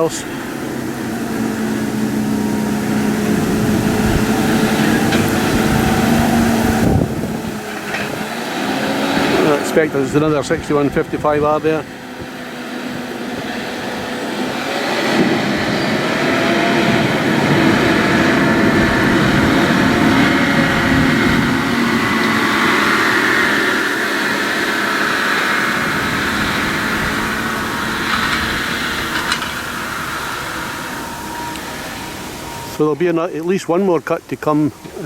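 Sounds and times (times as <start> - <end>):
tractor diesel engine under load: 0.0 - 35.0.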